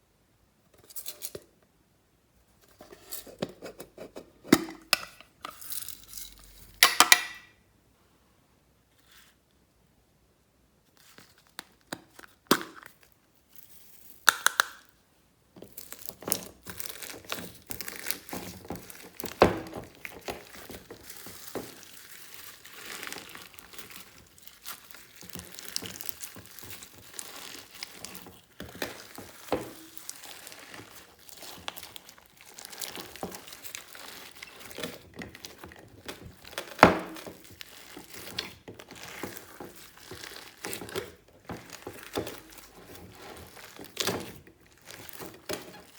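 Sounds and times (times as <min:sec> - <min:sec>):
slime squelching and popping: 0:15.6 - 0:45.9.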